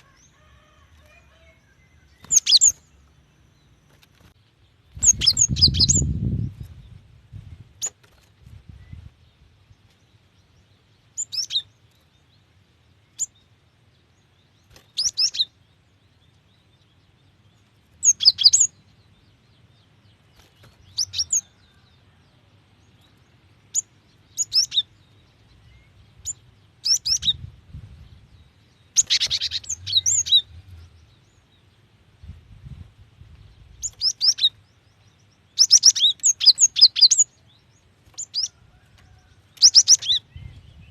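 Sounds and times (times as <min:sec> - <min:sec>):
bird high chirps: 0:00.0 - 0:03.8, 0:04.9 - 0:07.0, 0:11.1 - 0:12.1, 0:14.7 - 0:15.6, 0:18.0 - 0:19.2, 0:20.4 - 0:22.2, 0:22.9 - 0:31.5, 0:33.4 - 0:40.9.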